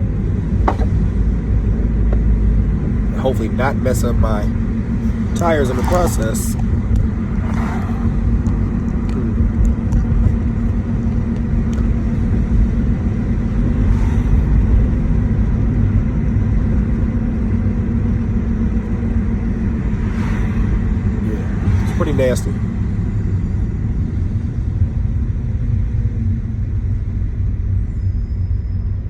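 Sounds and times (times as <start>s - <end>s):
car engine drone: 0.0s - 29.0s
road rumble: 0.0s - 29.0s.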